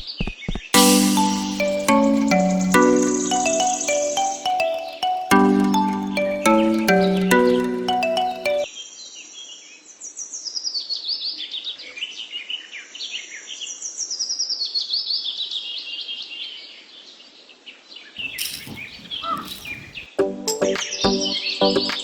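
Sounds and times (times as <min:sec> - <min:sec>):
bird chirping song: 0:00.8 - 0:08.7, 0:18.2 - 0:20.1.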